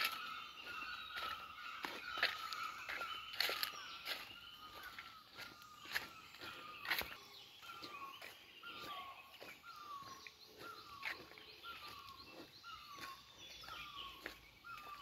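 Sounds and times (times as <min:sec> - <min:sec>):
high bird chirps: 0:00.0 - 0:15.0.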